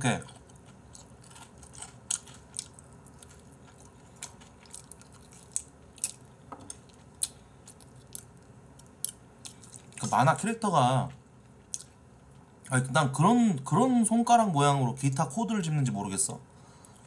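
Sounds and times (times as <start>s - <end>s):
crunchy chewing: 0.2s - 10.1s, 11.4s - 12.5s.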